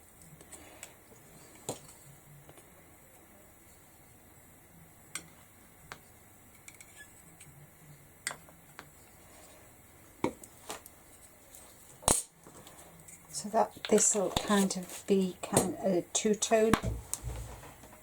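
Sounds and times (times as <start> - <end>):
paint pots and brush clicking: 12.5 - 15.6.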